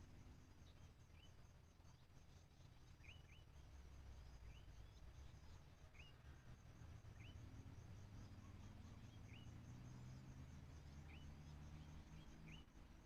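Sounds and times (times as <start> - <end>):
insects pulsing: 2.6 - 13.0
small bird chirping: 3.0 - 6.2, 7.1 - 13.0.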